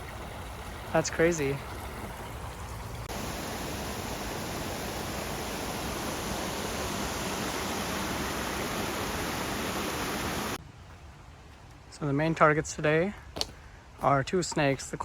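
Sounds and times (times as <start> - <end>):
creek water rushing: 0.0 - 10.6.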